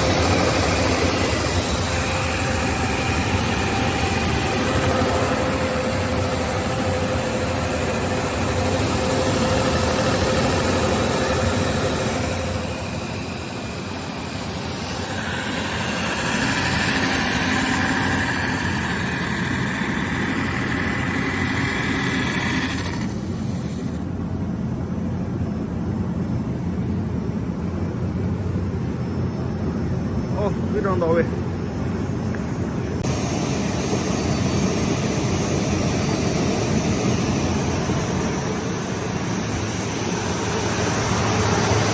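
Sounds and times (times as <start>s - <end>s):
sanding machine motor hum: 0.0s - 24.0s, 33.0s - 41.9s
high machine whine: 0.0s - 41.9s.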